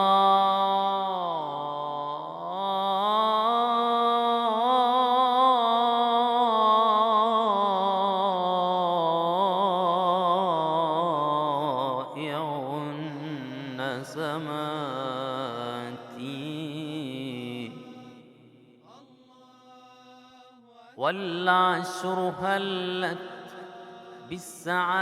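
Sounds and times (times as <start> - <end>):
man chanting unaccompanied: 0.0 - 25.0.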